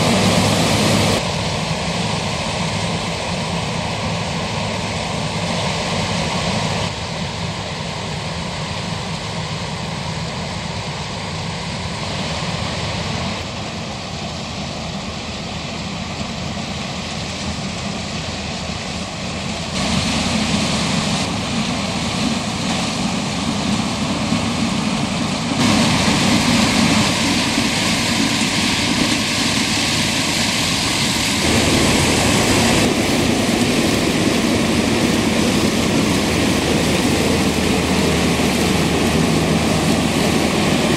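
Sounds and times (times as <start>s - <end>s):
combine harvester running: 0.0s - 40.9s
tractor hauling trailer: 15.1s - 40.9s.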